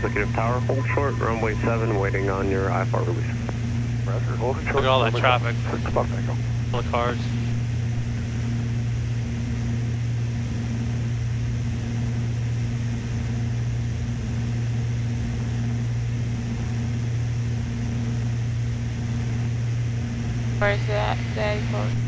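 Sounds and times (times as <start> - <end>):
twin propeller engines droning: 0.0 - 22.0.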